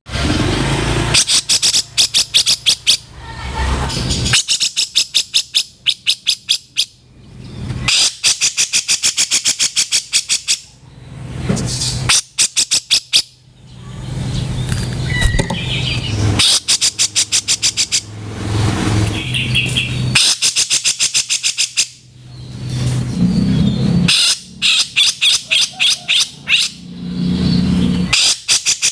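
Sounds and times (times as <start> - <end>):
rough noisy bird calls: 0.1 - 3.2, 3.8 - 28.9.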